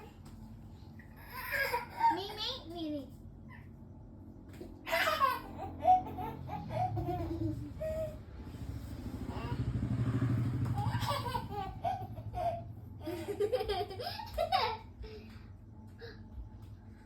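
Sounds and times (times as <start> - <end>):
small child laughing: 4.8 - 8.2, 10.7 - 15.2.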